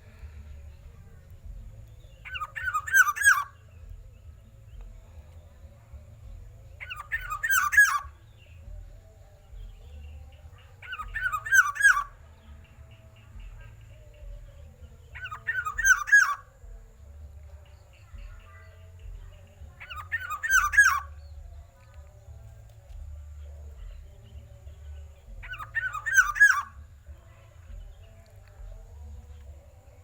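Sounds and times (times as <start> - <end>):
bird calling: 2.2 - 3.6, 6.8 - 8.2, 10.8 - 12.2, 15.2 - 16.5, 19.7 - 21.2, 25.4 - 26.8.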